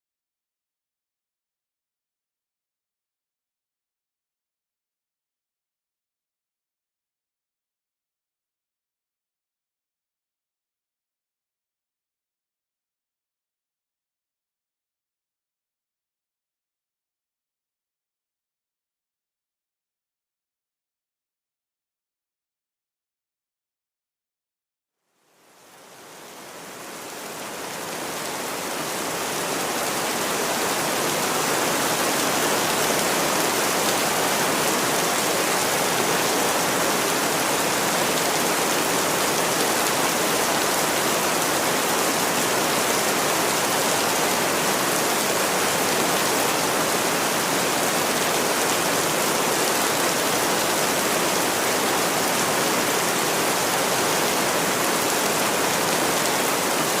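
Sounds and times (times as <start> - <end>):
steady rain: 25.1 - 57.0.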